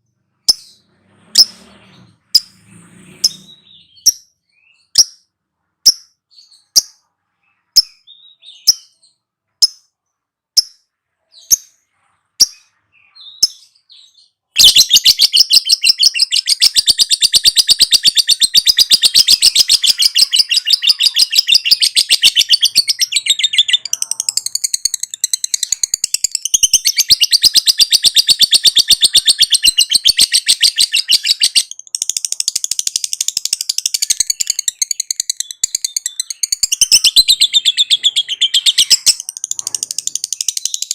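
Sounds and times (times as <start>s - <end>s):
lovebird chirps: 0.3s - 40.9s
rapid chattering bird trill: 14.6s - 40.9s.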